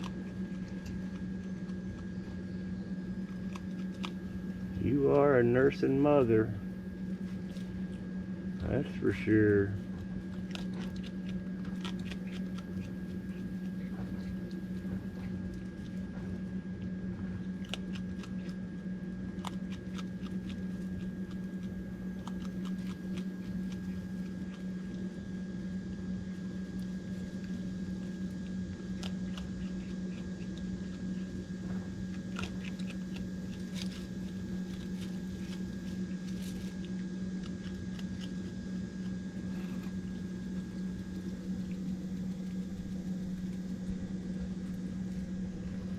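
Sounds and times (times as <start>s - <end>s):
low machine hum: 0.0s - 45.9s
raccoon crunching dry dog food: 0.0s - 45.9s.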